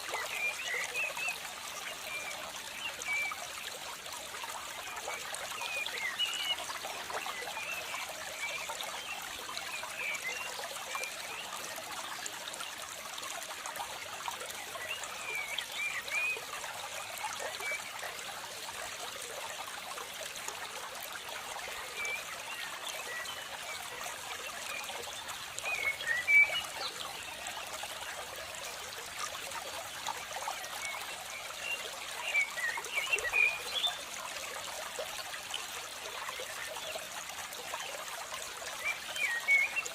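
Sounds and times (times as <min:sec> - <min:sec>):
water trickling in a stream: 0:00.0 - 0:39.9.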